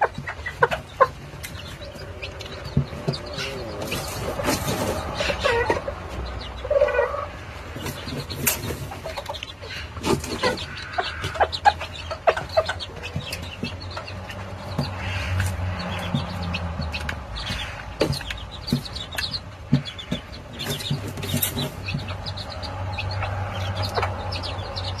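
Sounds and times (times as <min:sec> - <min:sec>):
sharp pecking taps: 0:00.0 - 0:06.2, 0:07.8 - 0:25.0
hen clucking softly: 0:00.0 - 0:16.1
chicks peeping: 0:00.0 - 0:25.0.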